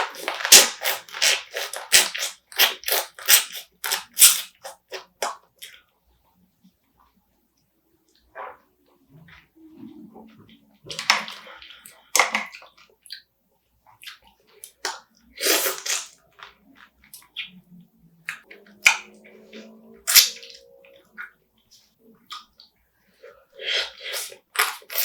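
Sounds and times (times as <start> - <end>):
wet chewing: 0.0 - 5.9.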